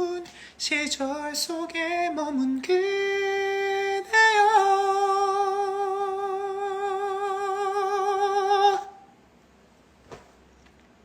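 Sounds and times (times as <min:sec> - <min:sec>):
man singing a long high note: 0:00.0 - 0:09.1.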